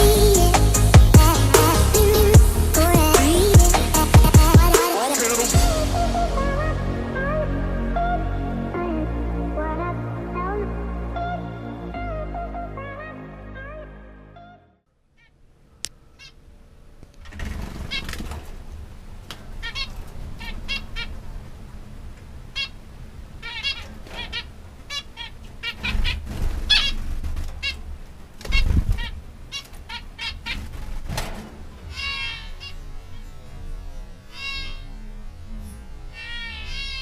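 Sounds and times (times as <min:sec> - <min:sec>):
low rumble: 0:00.0 - 0:04.8, 0:05.6 - 0:14.4.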